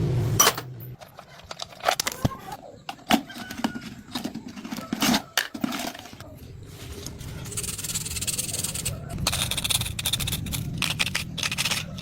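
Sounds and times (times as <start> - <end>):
metal tools clinking: 7.4 - 12.0.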